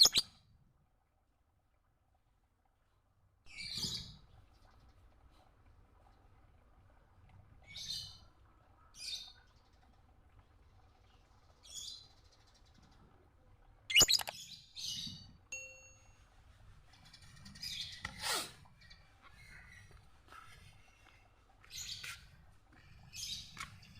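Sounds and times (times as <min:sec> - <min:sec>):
bird chirping: 0:00.0 - 0:00.3, 0:13.9 - 0:15.2
sharp click: 0:13.9 - 0:14.3.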